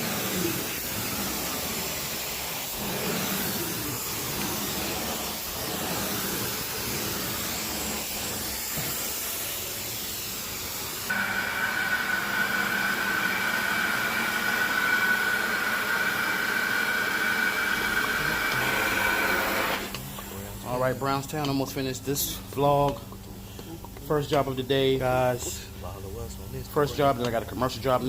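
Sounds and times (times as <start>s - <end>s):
vacuum running over carpet: 0.0s - 20.8s.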